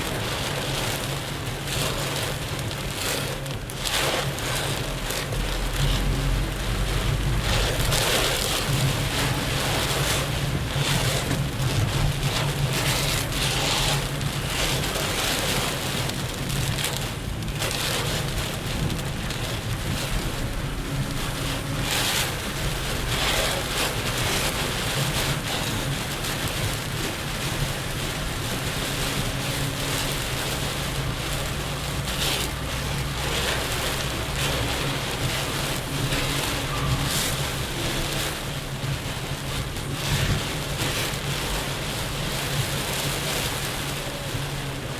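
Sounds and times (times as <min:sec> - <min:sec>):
engine and tyres humming: 0:00.0 - 0:44.9
heavy rain pelting a car: 0:00.0 - 0:44.9
rushes of water: 0:00.0 - 0:44.9.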